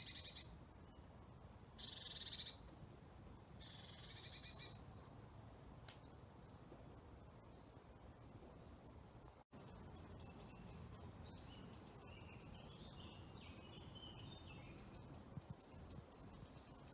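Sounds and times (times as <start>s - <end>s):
very high bird chirps: 0.0s - 0.5s, 1.8s - 2.6s
songbird high trills: 1.8s - 2.6s.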